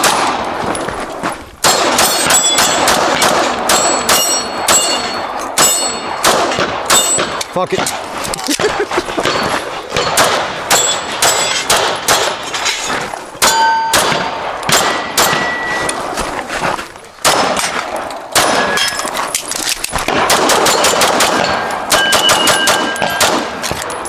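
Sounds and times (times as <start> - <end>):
pistol shots: 0.0 - 0.8, 1.6 - 12.6, 13.4 - 16.1, 17.2 - 24.0
steel targets ringing: 1.6 - 7.8, 9.1 - 16.2, 17.2 - 19.2, 20.2 - 24.0.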